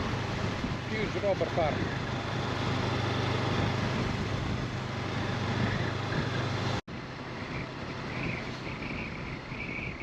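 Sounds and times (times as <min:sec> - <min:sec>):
motorcycle engine hum: 0:00.0 - 0:10.0
wind rush: 0:00.0 - 0:10.0
insects chirping: 0:07.4 - 0:10.0.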